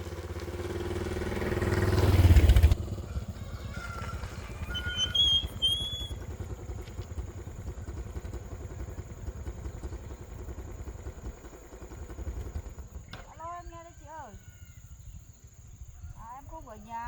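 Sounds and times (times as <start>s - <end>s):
small engine running: 0.0s - 14.0s
high bird chirps: 4.4s - 6.2s.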